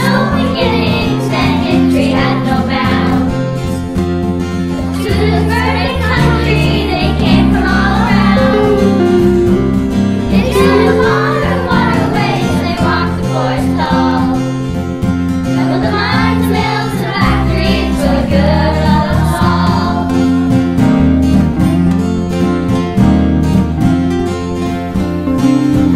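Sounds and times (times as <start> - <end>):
children's choir singing: 0.0 - 3.4, 4.8 - 9.5, 10.3 - 14.6, 15.5 - 20.5
instrumental backing music: 0.4 - 25.9.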